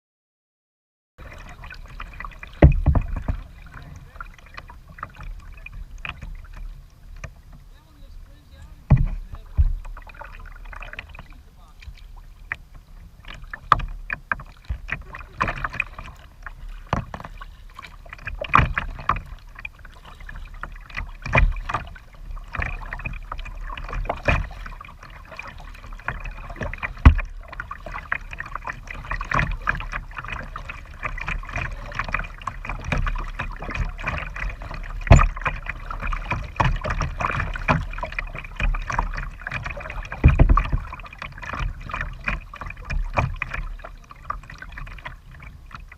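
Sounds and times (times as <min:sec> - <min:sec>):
paddle strokes in water: 0:01.2 - 0:45.9
splashes: 0:01.2 - 0:45.9
sharp knocks: 0:02.6 - 0:03.4, 0:08.9 - 0:09.9, 0:27.0 - 0:27.3, 0:35.0 - 0:35.5, 0:40.2 - 0:40.9.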